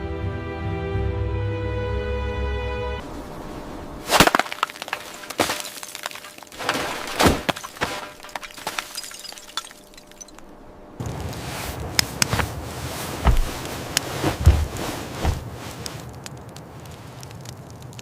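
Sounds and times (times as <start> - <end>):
background music: 0.0 - 3.0
sharp cracks and snaps: 10.3 - 12.6, 13.2 - 18.0.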